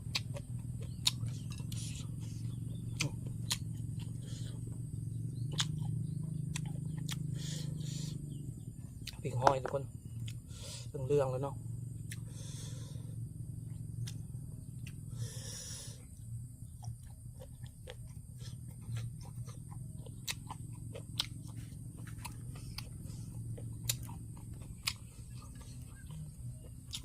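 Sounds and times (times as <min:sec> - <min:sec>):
person chewing: 0:00.0 - 0:08.1, 0:08.9 - 0:10.8, 0:16.6 - 0:27.0
steady low hum: 0:00.0 - 0:27.0.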